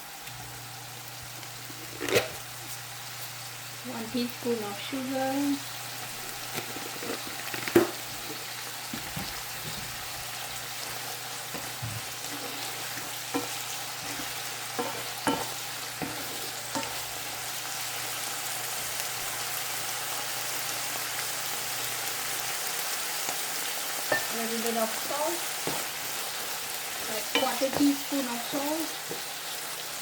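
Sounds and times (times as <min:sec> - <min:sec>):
food sizzling in a pan: 0:00.0 - 0:30.0
spatula knocking and scraping pan: 0:11.5 - 0:17.5, 0:25.6 - 0:25.9, 0:27.0 - 0:29.3.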